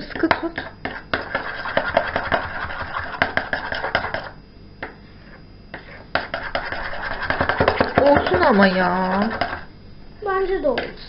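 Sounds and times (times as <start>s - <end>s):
utensil stirring slime in a bowl: 0.2s - 4.4s, 5.8s - 9.7s.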